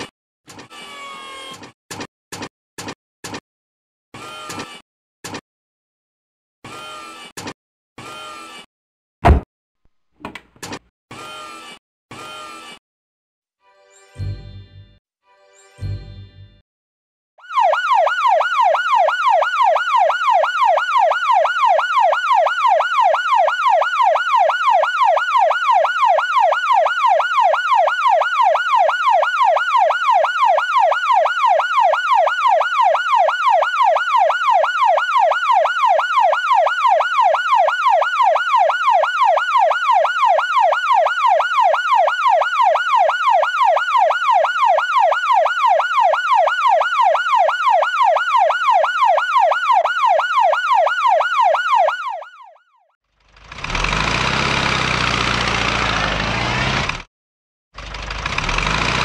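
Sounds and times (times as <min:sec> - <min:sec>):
ambulance siren yelping: 0:17.4 - 0:52.9.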